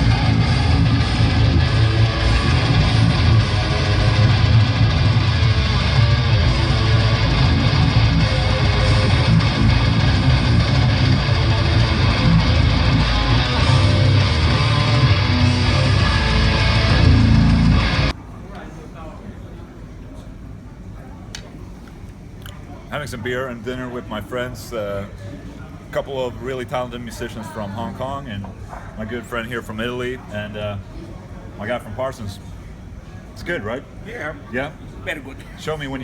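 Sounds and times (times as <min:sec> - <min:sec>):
loud electric guitar music: 0:00.0 - 0:18.1.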